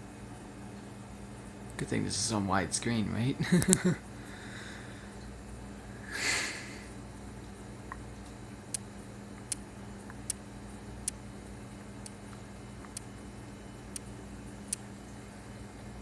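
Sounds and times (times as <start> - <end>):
ceiling fan hum: 0.0 - 16.0
fan ticking: 7.9 - 10.4, 11.0 - 11.2, 11.9 - 13.2, 13.9 - 14.9.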